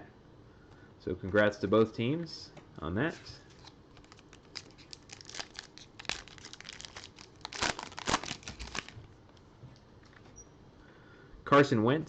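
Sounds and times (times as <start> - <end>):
plastic wrapper tearing and crumpling: 3.9 - 9.0.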